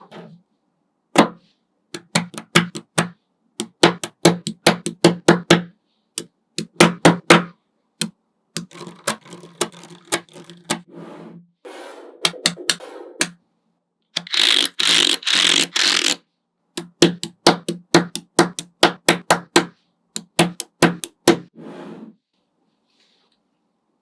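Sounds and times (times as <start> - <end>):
magnetic balls clicking: 2.0 - 5.7, 6.6 - 10.8, 12.3 - 13.4, 14.2 - 16.2, 16.8 - 21.5
magnetic balls snapping together: 2.0 - 5.7, 6.6 - 10.8, 12.3 - 13.4, 16.8 - 21.5
magnetic balls rattling: 8.6 - 10.8.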